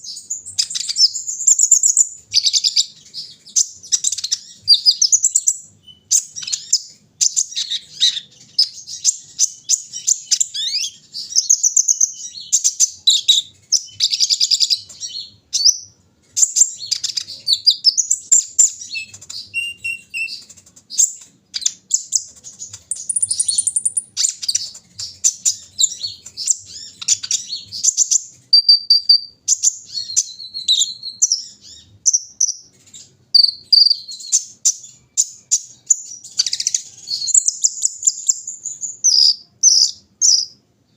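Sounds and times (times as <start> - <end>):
whistled bird notes: 0.0 - 40.6
bird chirping and trilling: 0.0 - 40.9.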